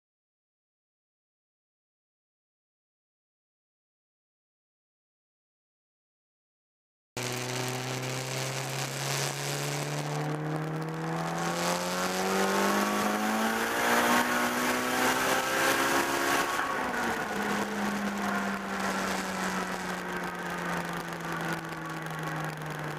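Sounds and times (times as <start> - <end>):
car engine revving at full throttle: 7.2 - 22.9.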